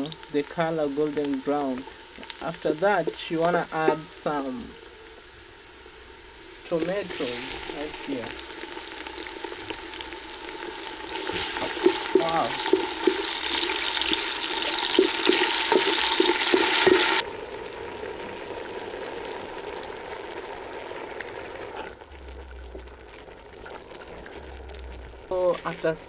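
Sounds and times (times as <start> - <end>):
vegetables sizzling in hot oil: 0.0 - 22.0
steady hiss: 0.0 - 26.0
wooden spoon knocking a pot: 14.7 - 17.2.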